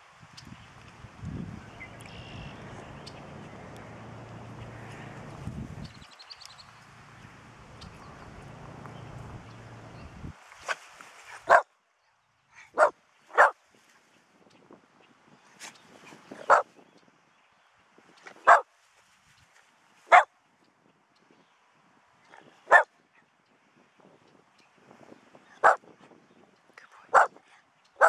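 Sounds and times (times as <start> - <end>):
dog barking: 11.4 - 11.7, 12.7 - 13.6, 16.4 - 16.7, 18.4 - 18.6, 22.7 - 22.9, 25.6 - 25.8, 27.1 - 27.4.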